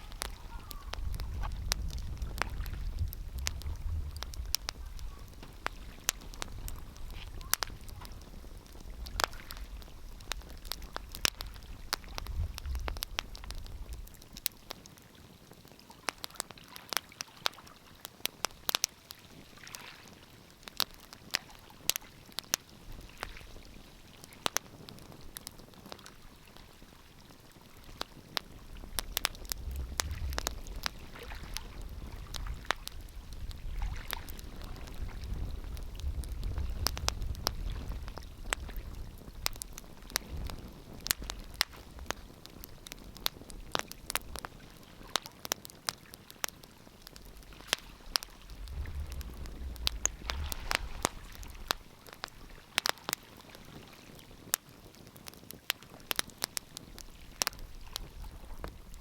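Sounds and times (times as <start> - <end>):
wood fire crackling: 0.0 - 59.0
low rumble: 47.3 - 51.9.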